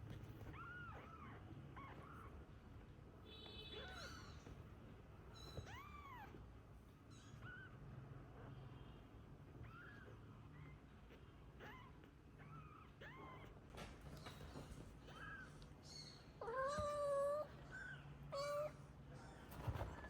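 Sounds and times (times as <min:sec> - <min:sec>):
kittens mewing: 0:09.6 - 0:13.7.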